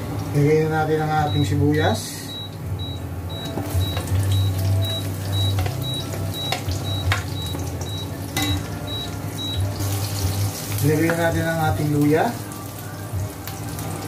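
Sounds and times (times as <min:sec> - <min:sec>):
garlic sizzling in hot oil: 0:03.6 - 0:14.0.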